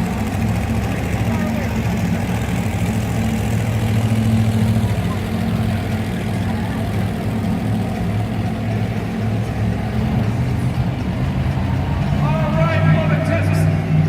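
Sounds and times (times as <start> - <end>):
monster truck engine running: 0.0 - 14.0.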